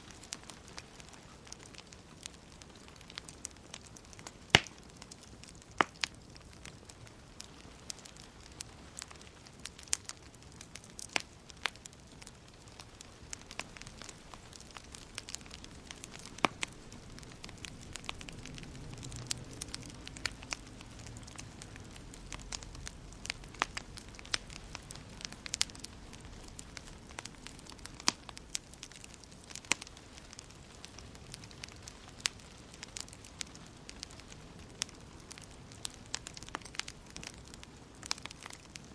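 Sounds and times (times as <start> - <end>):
low rumble of flames: 0.0 - 38.9
wood fire crackling: 0.0 - 38.9.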